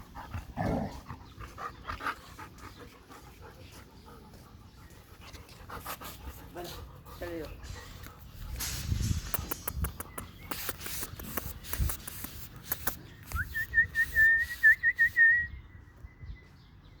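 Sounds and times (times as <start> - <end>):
person whistling high note: 13.3 - 15.5.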